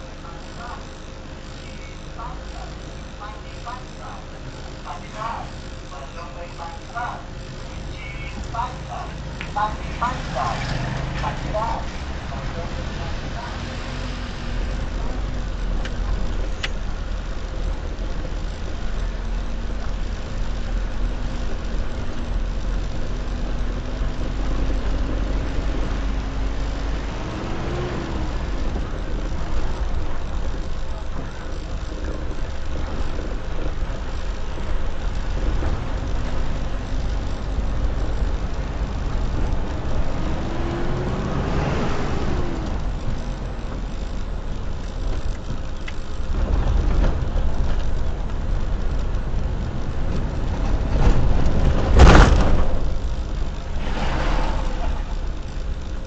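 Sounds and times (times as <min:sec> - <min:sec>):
road traffic rumble: 0:00.0 - 0:56.0
vehicle passing: 0:06.3 - 0:16.4, 0:21.4 - 0:56.0.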